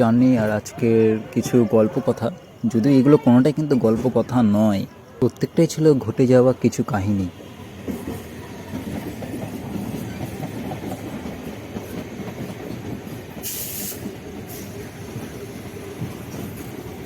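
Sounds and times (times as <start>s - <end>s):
train wheels rumbling on track: 0.0s - 17.0s
short hiss burst: 13.4s - 14.8s.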